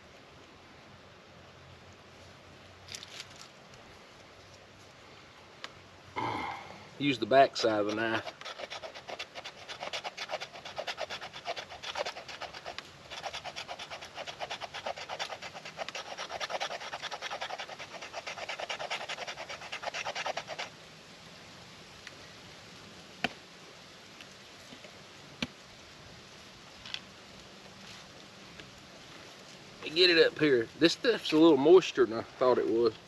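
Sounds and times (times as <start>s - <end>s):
knife spine scraping: 7.4s - 20.7s.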